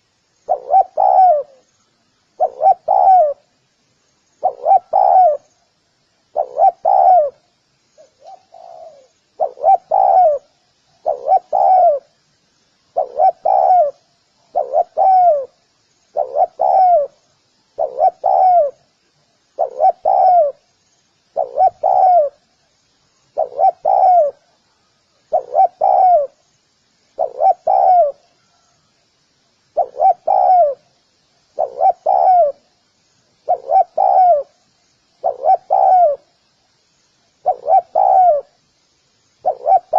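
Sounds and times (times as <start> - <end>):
dove cooing: 0.0 - 1.7, 2.4 - 3.5, 4.4 - 5.5, 6.3 - 7.4, 8.0 - 12.1, 12.9 - 17.2, 17.8 - 18.9, 19.6 - 20.6, 21.4 - 22.4, 23.3 - 24.6, 25.3 - 26.4, 27.2 - 28.2, 29.7 - 30.9, 31.6 - 32.7, 33.4 - 34.6, 35.2 - 36.3, 37.4 - 38.6, 39.4 - 39.9.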